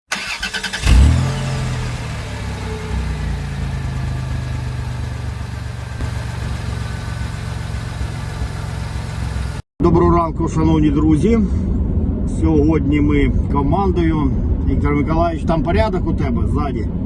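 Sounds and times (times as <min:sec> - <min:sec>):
car engine running: 0:00.1 - 0:09.6.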